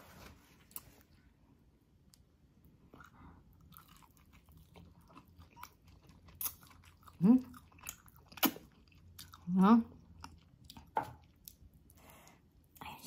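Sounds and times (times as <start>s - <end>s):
wet chewing and lip smacks: 2.1s - 12.0s.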